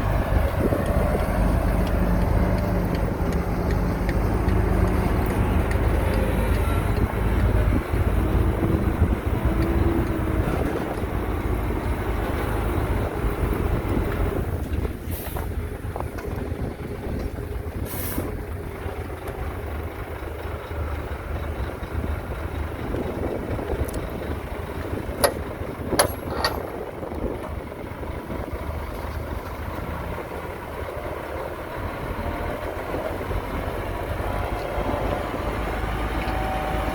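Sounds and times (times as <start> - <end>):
diesel engine rumbling: 0.0 - 36.9
short hisses: 17.9 - 18.3.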